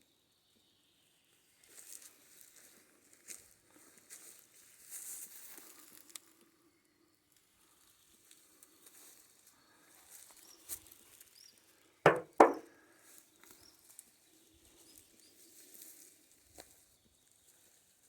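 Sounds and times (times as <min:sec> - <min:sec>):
faint ticks and rustling: 0:01.6 - 0:06.6, 0:07.2 - 0:11.6
loud short thuds: 0:12.1 - 0:12.6.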